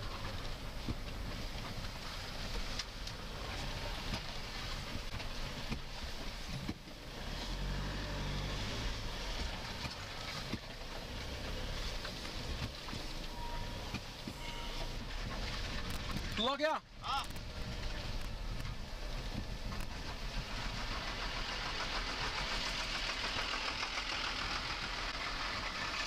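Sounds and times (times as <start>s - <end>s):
car engine running at low speed: 0.0s - 26.0s.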